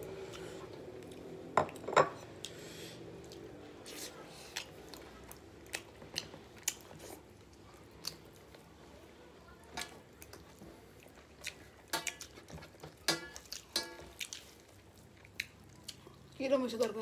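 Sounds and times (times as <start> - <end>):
close chewing with mouth clicks: 2.4 - 8.7, 9.8 - 16.4.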